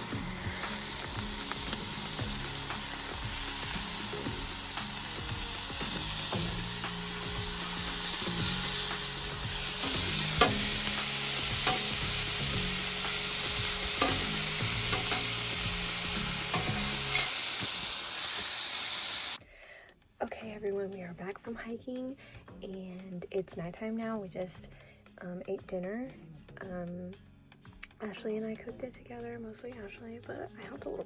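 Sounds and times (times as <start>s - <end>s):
spatula scraping a pan: 0.0s - 18.6s
eggs sizzling in a pan: 0.0s - 19.4s.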